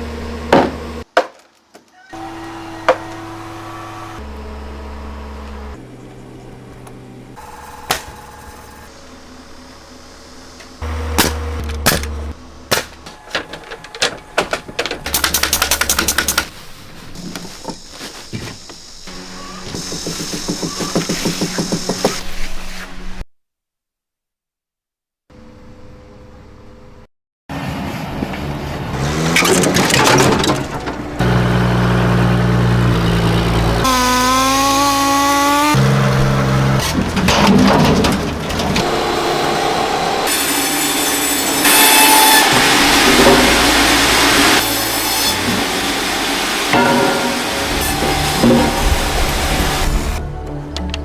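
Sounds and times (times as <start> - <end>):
low machine hum: 2.2 - 14.8
power tool motor humming: 31.2 - 36.8, 38.8 - 50.2
saw rasping through wood: 38.8 - 50.2.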